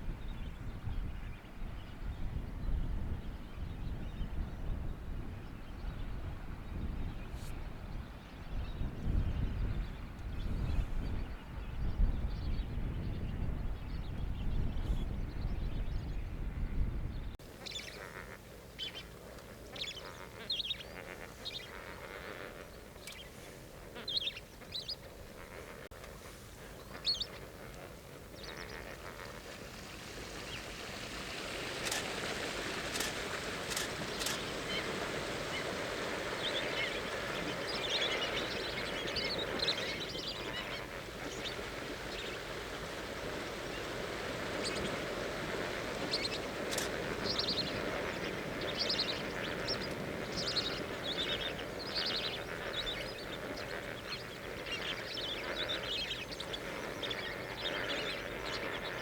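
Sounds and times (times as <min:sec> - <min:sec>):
flock of birds calling: 0:17.5 - 0:59.0.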